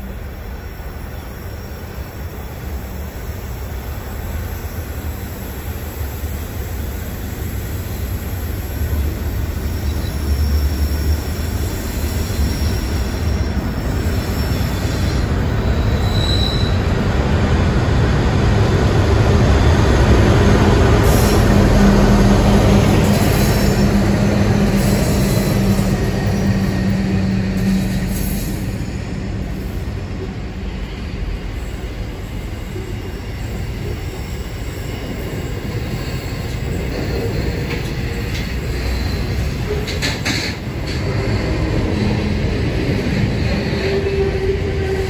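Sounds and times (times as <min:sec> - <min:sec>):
diesel locomotive engines humming: 0:00.0 - 0:45.0
wheel squeal: 0:09.7 - 0:16.9.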